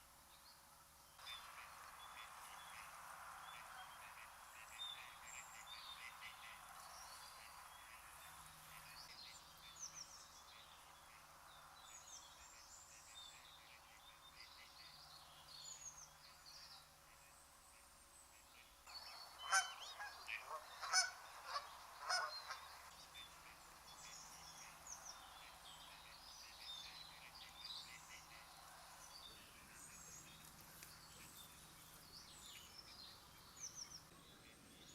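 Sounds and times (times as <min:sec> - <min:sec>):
small birds chirping: 0:00.3 - 0:34.9
geese honking: 0:19.4 - 0:22.6.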